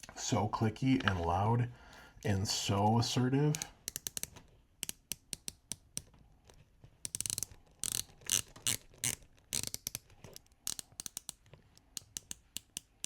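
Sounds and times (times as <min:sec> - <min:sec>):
watch bezel clicking: 0:03.5 - 0:06.1, 0:07.0 - 0:13.0.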